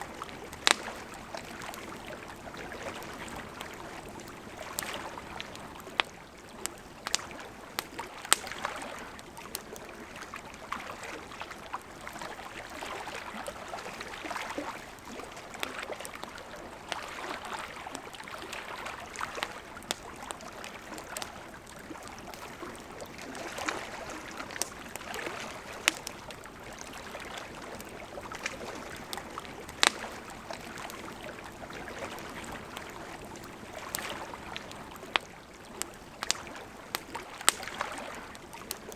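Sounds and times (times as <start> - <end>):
campfire crackling and popping: 0.0 - 38.9
river flowing: 0.0 - 38.9.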